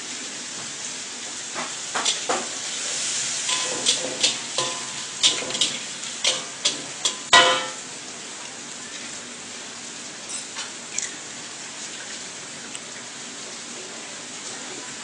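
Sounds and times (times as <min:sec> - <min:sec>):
food sizzling: 0:00.0 - 0:15.0
metal spatula clanging on wok: 0:03.5 - 0:07.8.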